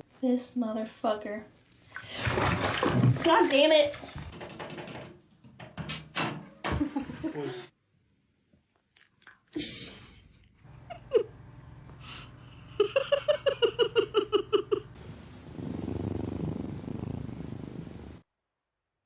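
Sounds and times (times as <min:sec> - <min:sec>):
cat purring: 0:15.0 - 0:18.2.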